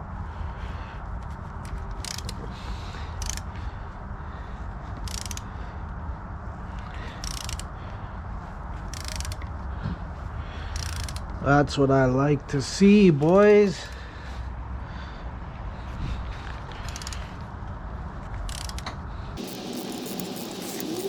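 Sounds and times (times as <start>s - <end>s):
ratchet wrench clicking: 1.6s - 2.4s, 3.1s - 3.5s, 5.0s - 5.5s, 6.8s - 7.7s, 8.9s - 9.5s, 10.7s - 11.4s, 16.8s - 17.4s, 18.4s - 21.0s.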